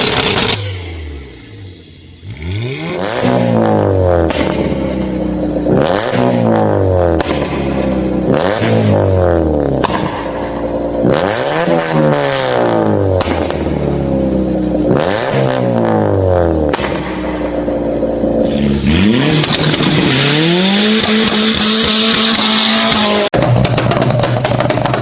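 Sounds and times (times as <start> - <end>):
car engine revving hard: 0.0 - 24.1
exhaust pops and bangs: 4.2 - 9.1, 9.7 - 14.2, 16.6 - 18.7, 19.4 - 20.2, 20.8 - 25.0.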